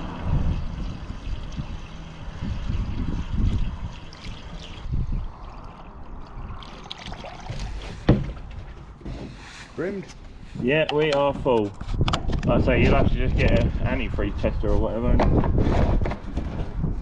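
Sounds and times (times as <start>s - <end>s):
water pouring and splashing: 0.0s - 9.5s.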